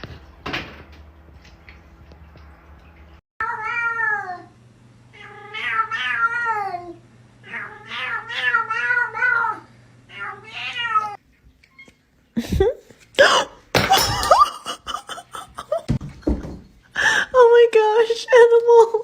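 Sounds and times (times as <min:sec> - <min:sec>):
cat meowing: 0:05.2 - 0:11.9.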